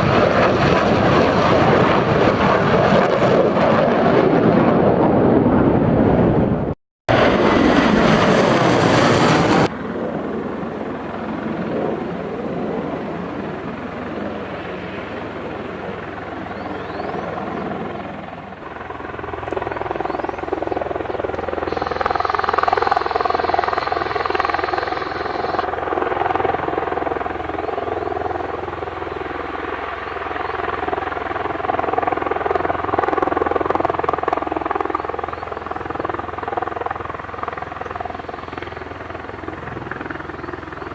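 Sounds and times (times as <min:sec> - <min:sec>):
jet engine roar: 0:00.0 - 0:40.9
engine drone with whine: 0:07.2 - 0:31.0.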